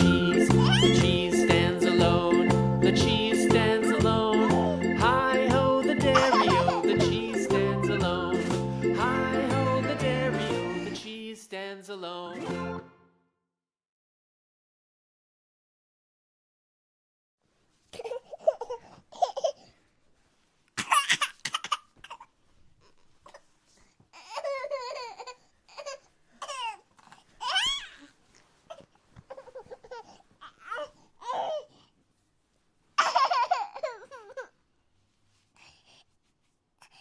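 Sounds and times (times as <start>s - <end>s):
young child laughing and babbling: 0.6s - 1.0s, 6.1s - 7.0s.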